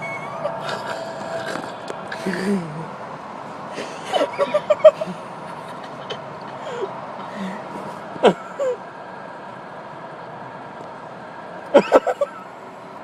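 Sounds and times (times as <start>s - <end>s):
people snickering: 0.0s - 2.8s
car hum: 0.0s - 13.0s.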